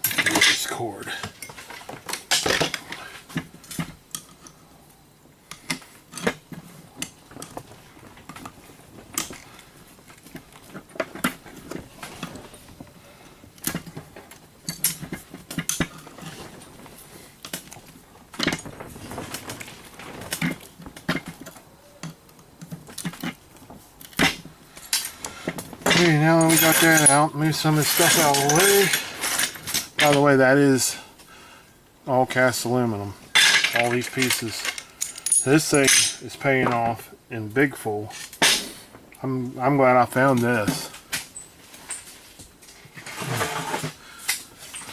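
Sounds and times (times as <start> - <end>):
metal parts and tools clinking: 0.0 - 2.9, 24.0 - 30.3, 33.3 - 36.9, 40.3 - 44.9.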